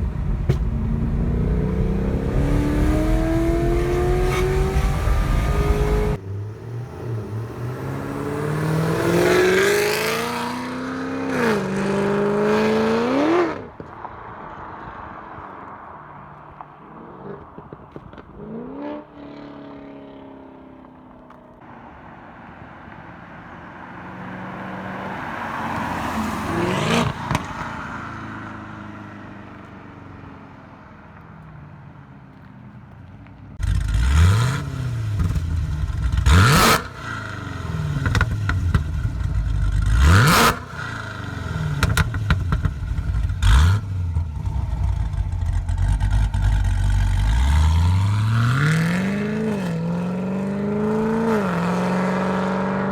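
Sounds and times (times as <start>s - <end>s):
exhaust cracks: 0.0s - 6.2s, 33.6s - 48.6s
car engine accelerating and revving: 0.0s - 13.8s, 24.0s - 28.0s, 33.6s - 52.9s.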